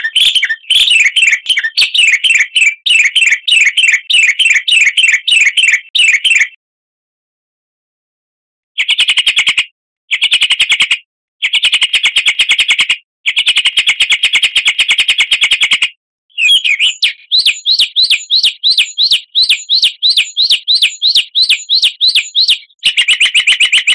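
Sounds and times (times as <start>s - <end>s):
quick rising and falling chirps: 0.0s - 2.8s, 16.4s - 23.9s
fast buzzy bird trill: 0.0s - 6.6s, 16.4s - 23.9s.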